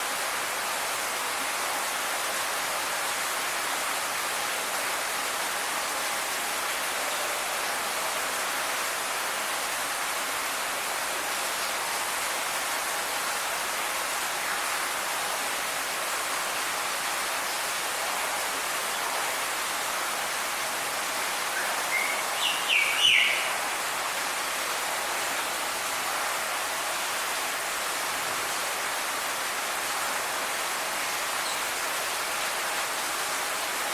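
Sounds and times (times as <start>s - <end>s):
steady rushing hiss: 0.0s - 33.9s
quick bird calls: 21.6s - 23.6s.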